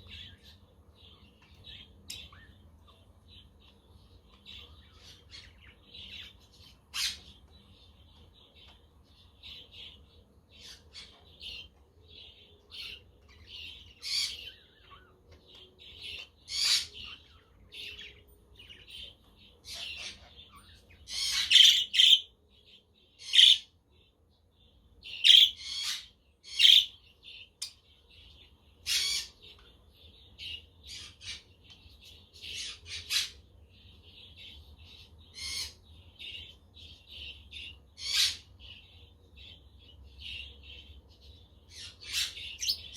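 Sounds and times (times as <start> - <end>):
budgerigars chirping: 18.9 - 22.4, 23.2 - 23.7, 25.0 - 27.7, 28.8 - 29.6, 34.3 - 40.9.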